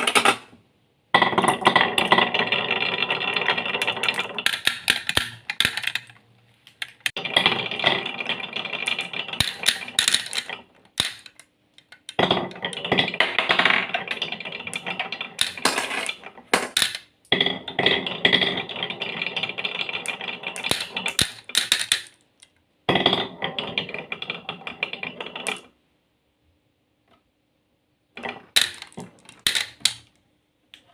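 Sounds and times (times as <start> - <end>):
marbles rolling down a track: 1.2 - 6.1, 7.1 - 11.4, 12.1 - 22.2, 22.9 - 25.7, 28.2 - 30.1.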